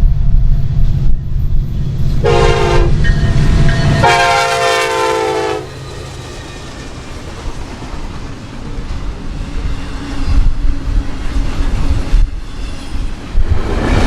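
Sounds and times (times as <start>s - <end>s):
train rumble: 0.0s - 14.0s
locomotive air horn blasts: 2.2s - 3.2s, 3.9s - 5.8s.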